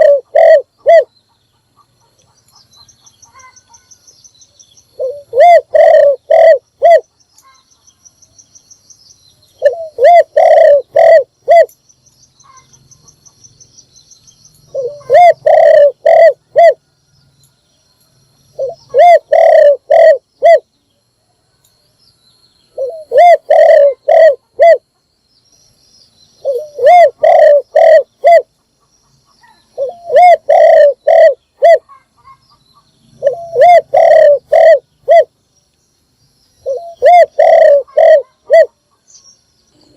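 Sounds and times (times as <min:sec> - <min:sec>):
dove cooing: 0:00.0 - 0:01.1, 0:05.0 - 0:07.0, 0:09.6 - 0:11.7, 0:14.7 - 0:16.8, 0:18.6 - 0:20.7, 0:22.8 - 0:24.8, 0:26.4 - 0:28.5, 0:29.4 - 0:32.4, 0:33.2 - 0:35.3, 0:36.6 - 0:38.8.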